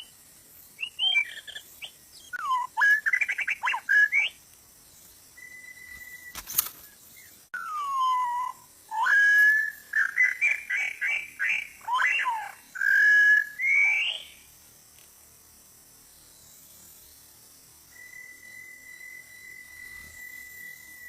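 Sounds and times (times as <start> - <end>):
bird song whistles: 0.8 - 4.4, 5.4 - 6.4, 7.2 - 14.4
sharp click: 6.2 - 6.9.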